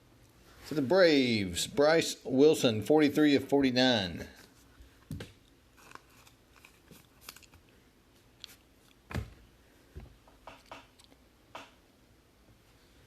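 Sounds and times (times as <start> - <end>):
trading cards rustling: 4.4 - 7.8.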